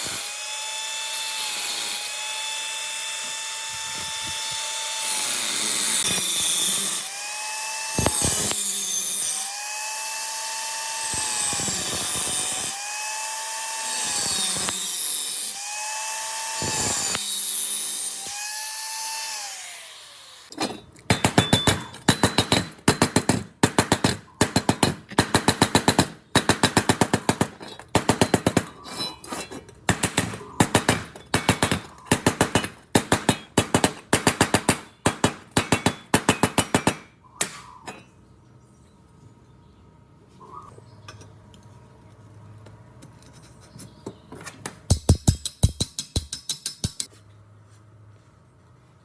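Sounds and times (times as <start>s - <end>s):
power tool whining into metal: 0.0s - 20.6s
power tool hammering impacts: 0.0s - 38.0s, 44.6s - 47.1s.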